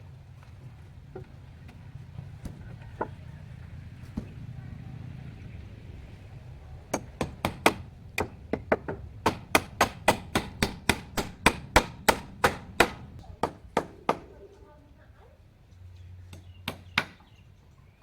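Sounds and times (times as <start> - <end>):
rapid sharp knocking: 6.9 - 14.2.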